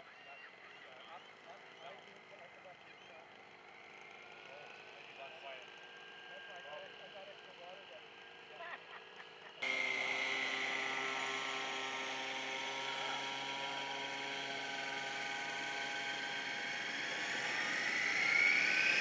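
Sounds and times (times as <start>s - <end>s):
model airplane motor whine: 3.2s - 8.6s, 9.6s - 19.0s.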